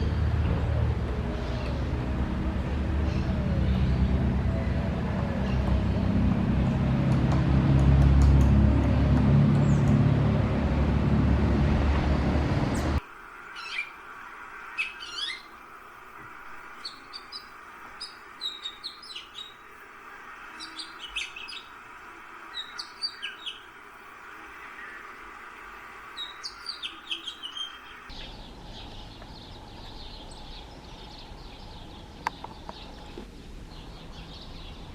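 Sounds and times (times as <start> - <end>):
loud low rumble with hum: 0.0 - 13.0
small birds chirping: 12.8 - 34.9.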